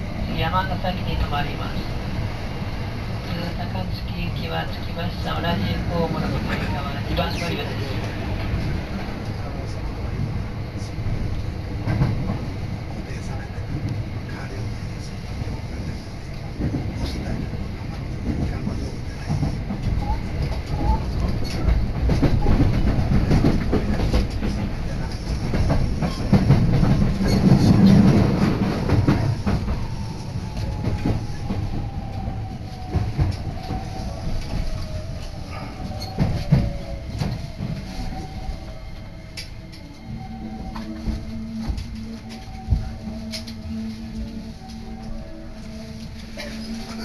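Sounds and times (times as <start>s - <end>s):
train rumble inside carriage: 0.0s - 47.0s.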